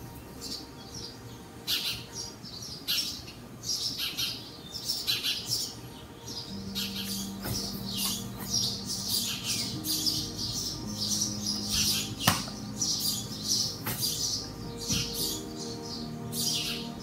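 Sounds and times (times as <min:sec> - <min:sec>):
small birds chirping: 0:00.0 - 0:17.0
held low notes: 0:06.2 - 0:17.0.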